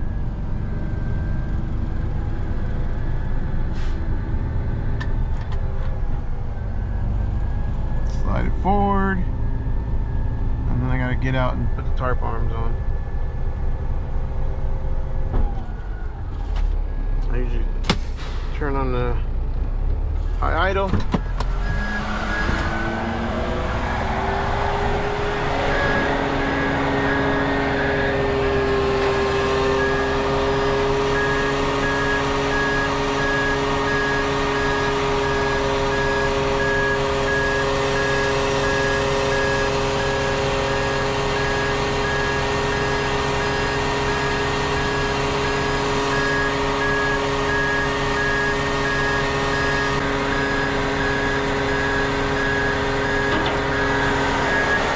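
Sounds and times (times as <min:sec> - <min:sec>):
diesel engine revving: 0:06.0 - 0:54.9
warning beeper: 0:08.1 - 0:13.1, 0:20.4 - 0:54.9.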